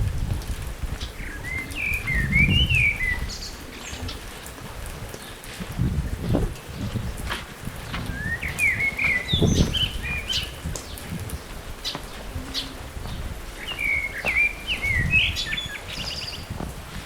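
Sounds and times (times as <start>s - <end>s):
songbird chirping: 1.0s - 4.2s, 7.8s - 16.6s.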